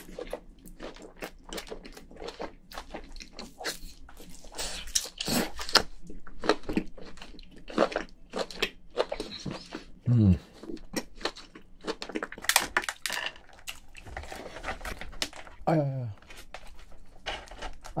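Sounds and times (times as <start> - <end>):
person chewing with wet smacks: 0.0 - 12.6.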